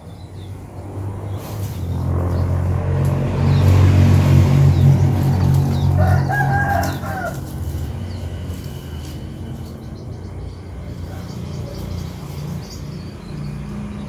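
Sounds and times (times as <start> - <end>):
rooster crowing: 5.5 - 8.2.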